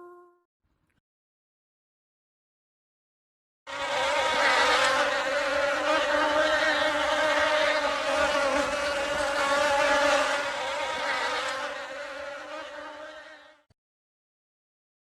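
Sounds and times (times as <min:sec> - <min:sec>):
flying insect buzzing: 0:03.7 - 0:13.7.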